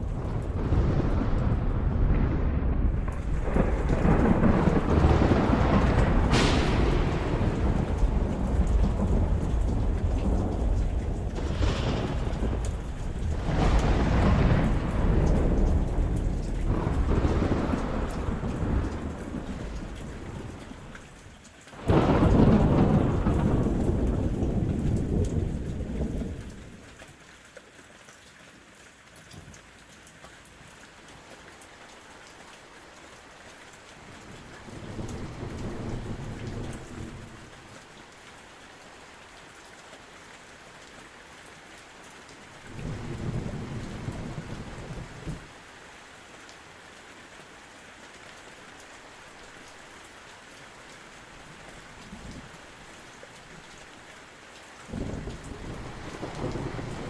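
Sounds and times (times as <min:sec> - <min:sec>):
thunder rumbling: 0:00.0 - 0:26.8, 0:34.0 - 0:38.2, 0:42.5 - 0:45.6, 0:54.9 - 0:57.0
steady rain falling: 0:00.0 - 0:57.0.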